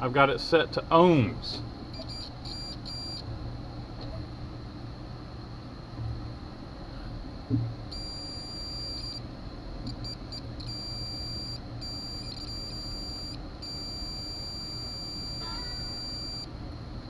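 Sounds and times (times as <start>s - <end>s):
low steady hum: 0.0s - 17.0s
multimeter continuity beeps: 1.9s - 3.2s, 7.9s - 9.2s, 9.9s - 16.5s.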